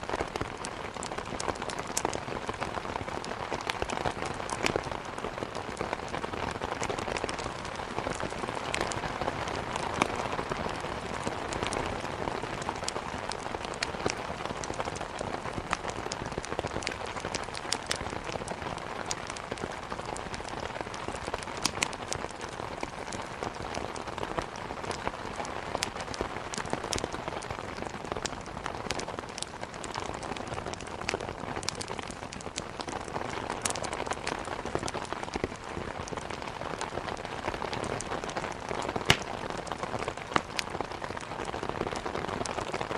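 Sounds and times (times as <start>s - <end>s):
rain hitting a window: 0.0s - 42.9s
wood fire crackling: 0.0s - 42.9s.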